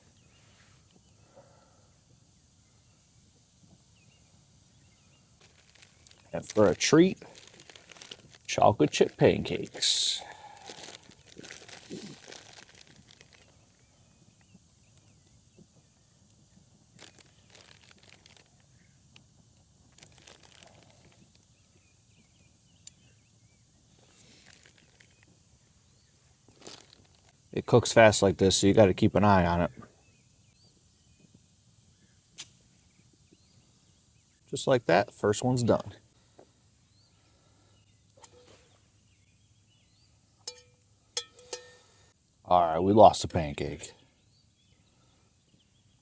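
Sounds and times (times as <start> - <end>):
faint ticks and crackles: 0.3 - 28.1
metal cookware clinking: 40.4 - 41.8.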